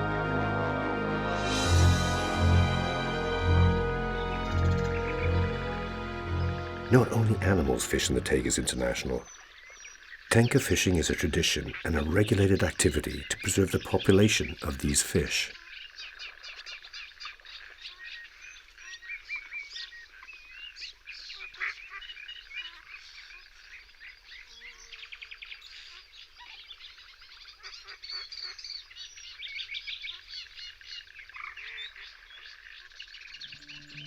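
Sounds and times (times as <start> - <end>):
steady music notes: 0.0 - 9.2
birds chirping and trilling: 1.4 - 34.0.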